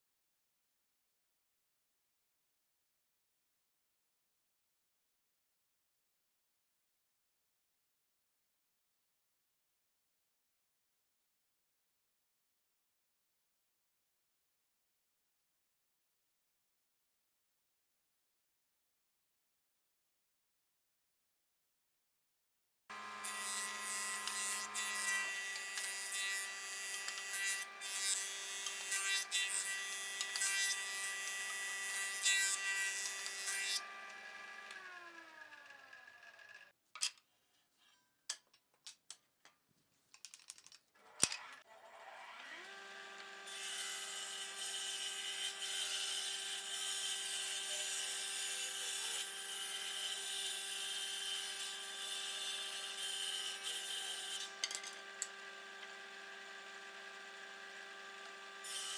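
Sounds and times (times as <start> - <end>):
power tool cutting wood: 22.9 - 36.8, 41.0 - 58.9.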